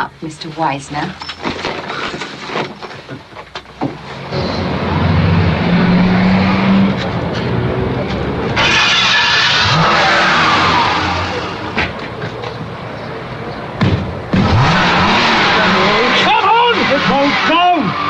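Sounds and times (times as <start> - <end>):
car engine revving: 4.2 - 12.1, 14.3 - 18.0
harsh rushing burst: 8.6 - 11.8, 14.3 - 18.0.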